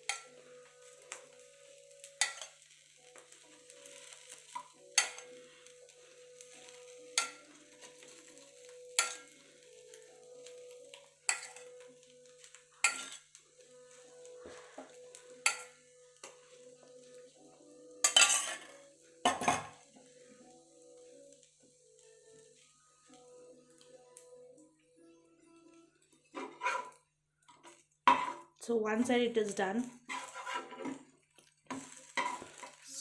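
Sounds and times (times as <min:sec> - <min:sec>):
bread sizzling in a pan: 0:00.0 - 0:24.6, 0:25.5 - 0:33.0
metal utensil knocking on cookware: 0:19.3 - 0:19.8.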